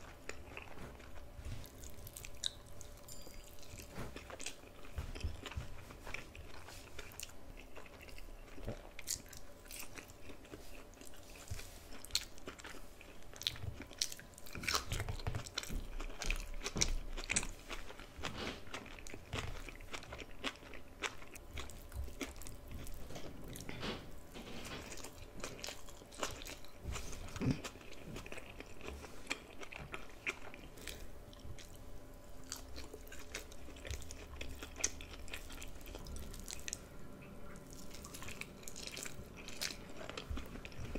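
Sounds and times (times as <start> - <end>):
crisp chewing crunches: 0.0 - 36.9, 37.5 - 40.9.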